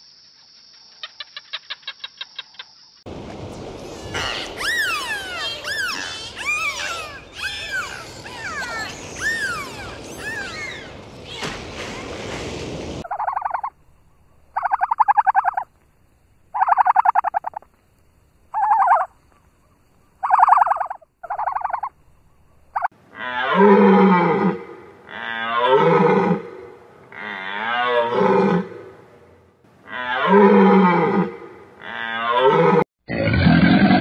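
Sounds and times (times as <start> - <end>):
long wavering animal calls: 4.2 - 10.9, 18.6 - 19.1.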